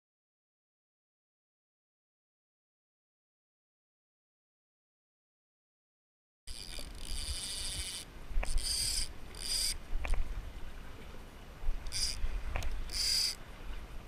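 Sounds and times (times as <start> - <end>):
fishing reel drag buzzing: 6.5 - 10.2, 11.9 - 13.4.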